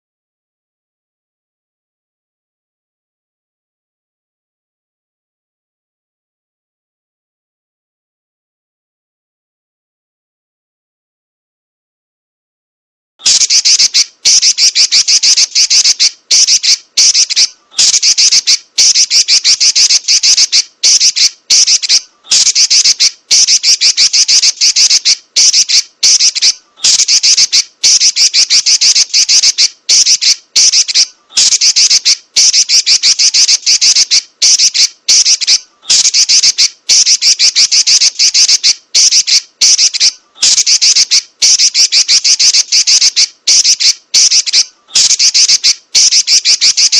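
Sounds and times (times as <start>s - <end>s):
bird chattering calls: 13.2s - 46.9s.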